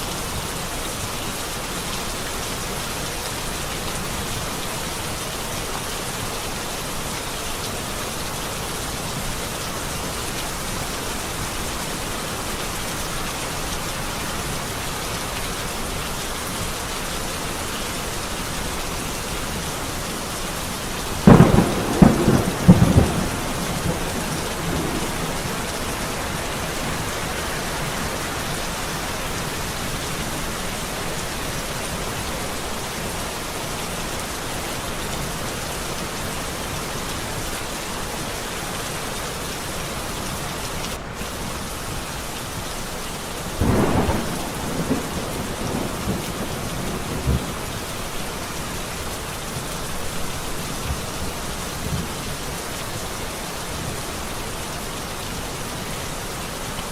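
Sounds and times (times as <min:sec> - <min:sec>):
steady rain falling: 0:00.0 - 0:56.9
thunderclap: 0:21.2 - 0:26.4, 0:43.6 - 0:47.6.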